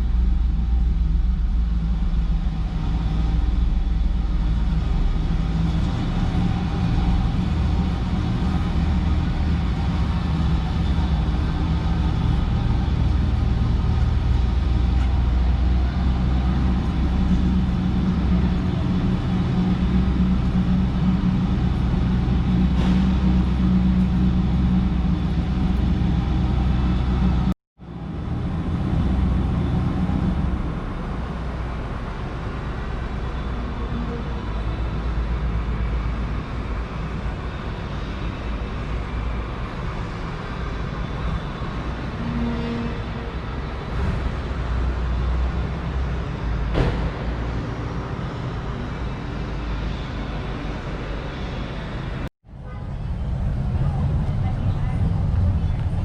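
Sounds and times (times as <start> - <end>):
vehicle engine rumbling: 0.0 - 56.0.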